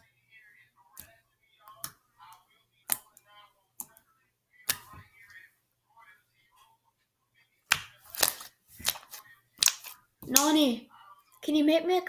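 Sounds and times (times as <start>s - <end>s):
slime squishing: 7.7s - 10.8s.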